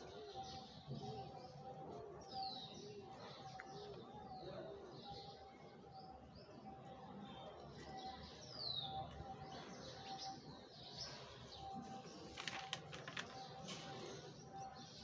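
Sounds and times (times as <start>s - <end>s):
faint bird chirps: 0.0s - 15.0s
paper page turning: 11.8s - 13.6s.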